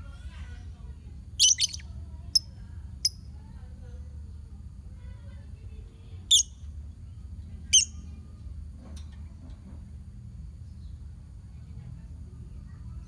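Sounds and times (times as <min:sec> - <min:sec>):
lovebirds calling: 0:01.4 - 0:01.9, 0:06.3 - 0:06.5.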